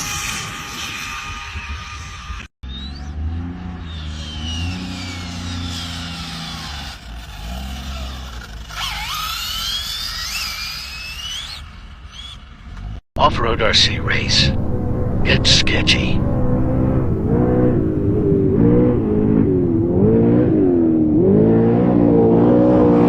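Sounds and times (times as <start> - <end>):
rc car motors whining: 0.0 - 13.0
low steady drone: 13.2 - 22.9.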